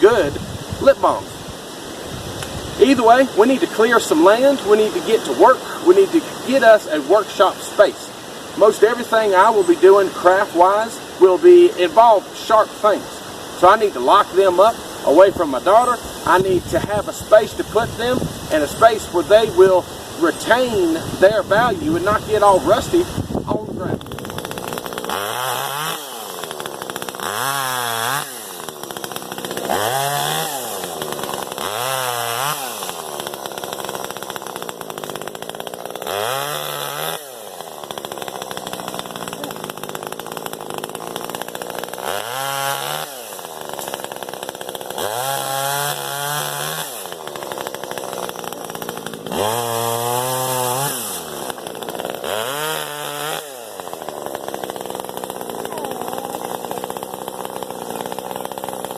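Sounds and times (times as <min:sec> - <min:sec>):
chainsaw revving: 0:00.0 - 0:58.9.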